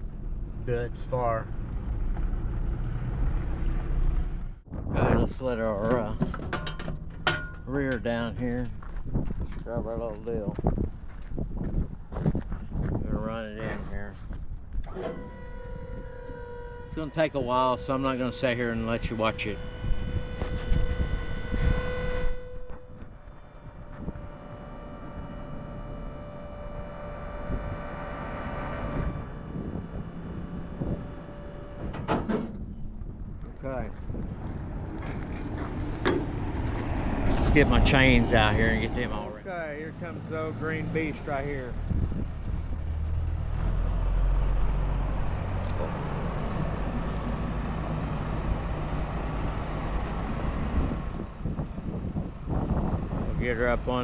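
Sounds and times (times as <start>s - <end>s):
vehicle engine droning: 0.0s - 54.0s.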